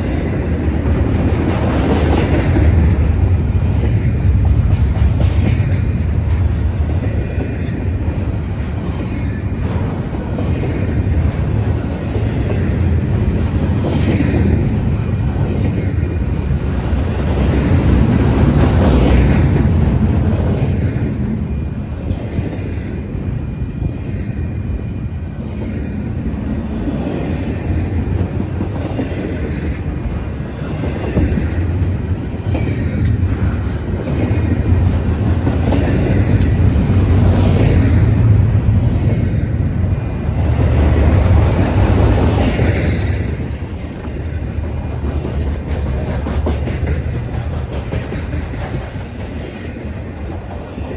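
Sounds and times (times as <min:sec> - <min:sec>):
rumble of train wheels on rail: 0:00.0 - 0:50.9
wheels clacking: 0:26.4 - 0:50.9
high wheel squeal: 0:42.9 - 0:46.0.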